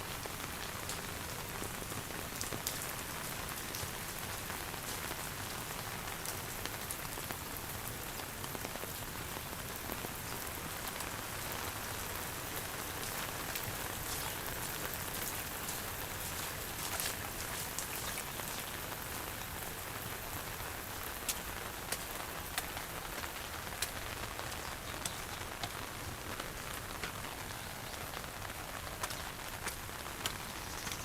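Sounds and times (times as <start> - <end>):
steady rain falling: 0.0 - 31.0
sharp raindrop taps: 21.2 - 31.0.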